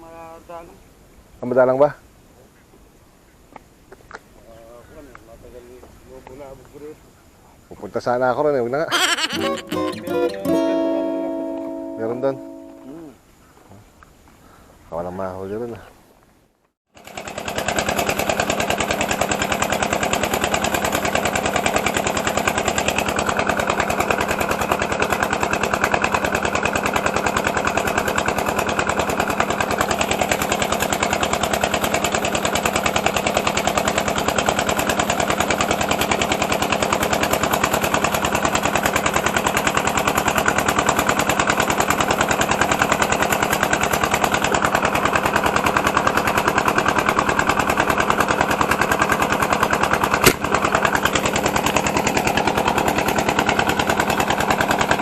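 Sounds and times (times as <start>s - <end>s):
small engine running steadily: 16.9s - 55.0s.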